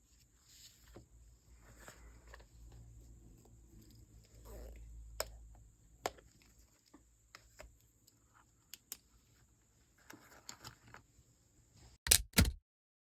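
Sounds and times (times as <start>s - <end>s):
soft rustle: 0.0s - 4.9s.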